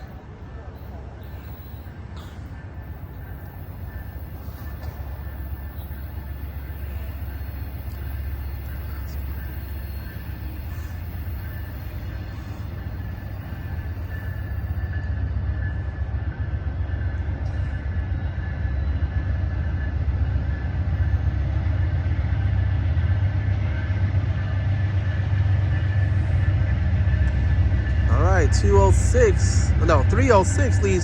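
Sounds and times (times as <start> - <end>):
thin steady high tone: 0.0 - 15.0
train engine and wheels rumbling: 0.0 - 31.0.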